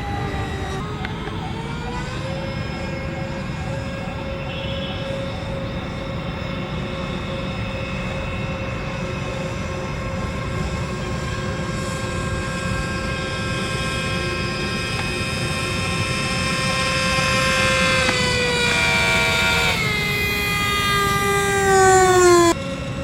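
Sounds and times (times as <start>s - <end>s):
electric propeller motor whining: 0.0s - 23.0s.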